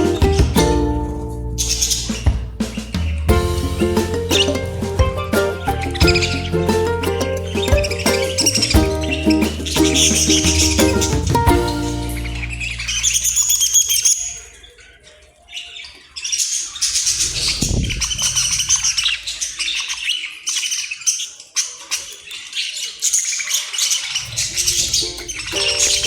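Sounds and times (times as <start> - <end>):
background music with bass: 0.0 - 13.6
budgerigars chirping and chattering: 1.6 - 4.8, 5.6 - 26.0.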